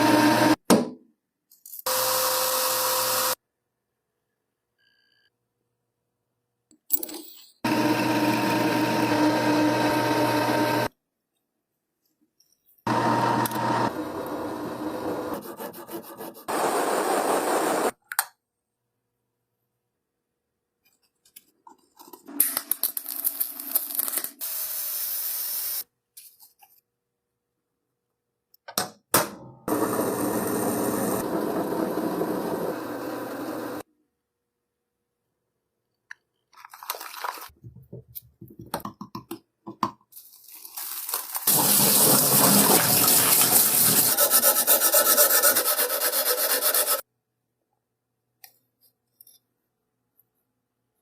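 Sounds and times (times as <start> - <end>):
electric power tool running: 1.9 - 3.4, 7.7 - 10.9, 12.9 - 15.3, 29.7 - 33.8.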